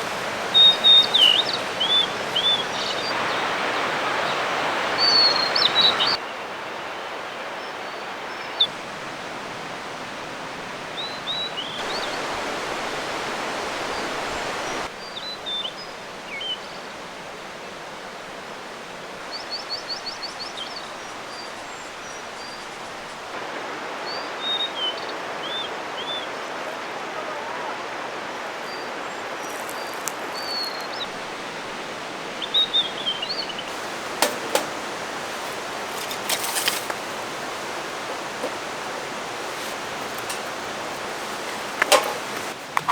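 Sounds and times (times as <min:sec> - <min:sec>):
small birds chirping: 0:00.0 - 0:06.2, 0:10.9 - 0:12.6, 0:29.4 - 0:42.9
stream rushing: 0:00.0 - 0:14.9, 0:23.2 - 0:29.4, 0:30.1 - 0:42.9.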